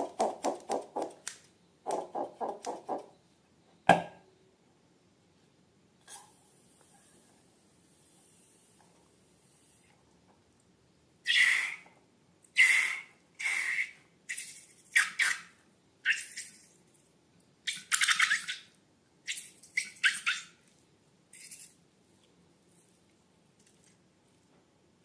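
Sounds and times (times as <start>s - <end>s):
balloons squirting air and liquid: 11.3s - 11.8s, 12.6s - 15.0s.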